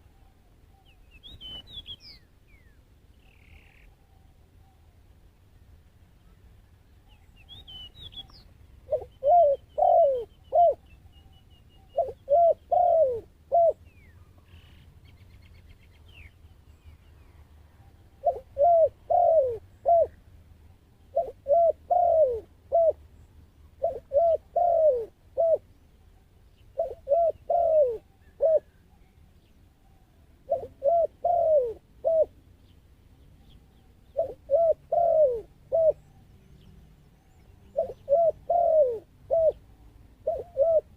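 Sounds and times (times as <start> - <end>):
small bird chirps: 0.2 - 4.9, 7.0 - 12.9
dove cooing: 8.2 - 10.8, 11.8 - 13.9, 18.1 - 20.2, 21.1 - 23.0, 23.8 - 25.7, 26.7 - 28.9, 29.8 - 32.4, 33.5 - 36.2, 37.5 - 40.9.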